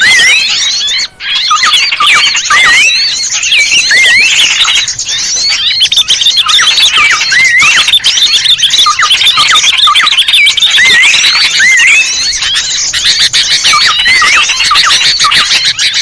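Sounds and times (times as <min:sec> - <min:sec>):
small birds chirping and whistling: 0:00.0 - 0:16.0.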